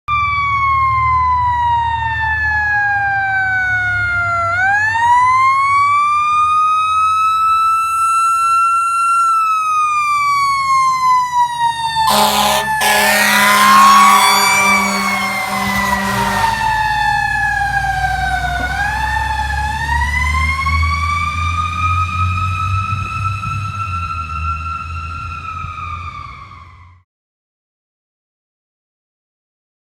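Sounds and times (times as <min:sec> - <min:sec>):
fire engine siren wailing: 0:00.1 - 0:27.0
truck rumble: 0:04.1 - 0:26.8
loud blaring horn: 0:11.8 - 0:18.9.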